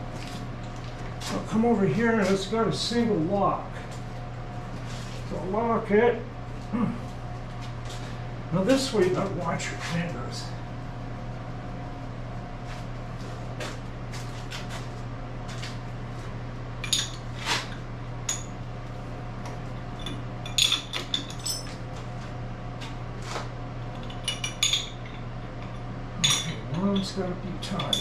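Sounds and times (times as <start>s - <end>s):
steady low hum: 0.0s - 28.0s
metallic clinks and clanks: 20.0s - 21.8s, 26.2s - 27.1s.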